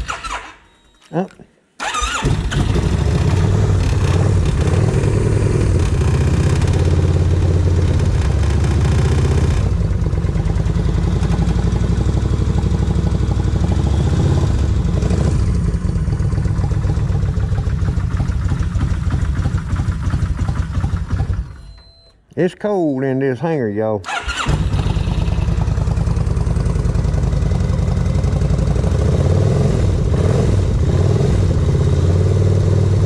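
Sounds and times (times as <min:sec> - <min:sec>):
motorcycle engine idling: 0:02.7 - 0:13.8, 0:14.7 - 0:21.6, 0:24.1 - 0:29.0.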